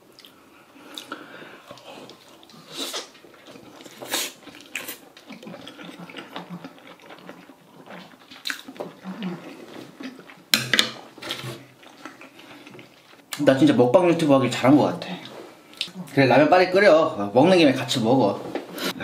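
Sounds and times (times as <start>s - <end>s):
person chewing noodles: 0.0s - 13.4s.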